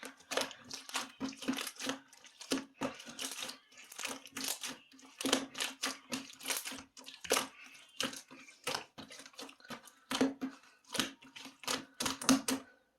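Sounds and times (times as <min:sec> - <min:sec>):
slime squishing by hand: 0:00.0 - 0:12.7.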